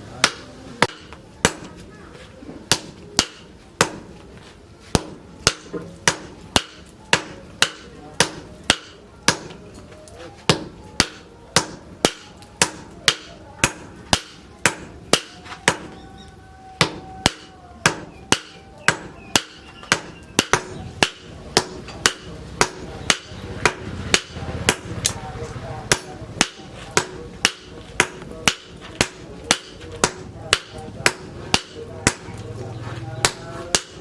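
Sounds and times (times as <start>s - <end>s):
hammer striking steel on anvil: 0.2s - 1.9s, 2.7s - 4.2s, 4.9s - 9.8s, 10.4s - 16.1s, 16.8s - 25.2s, 25.8s - 32.6s, 33.2s - 34.0s.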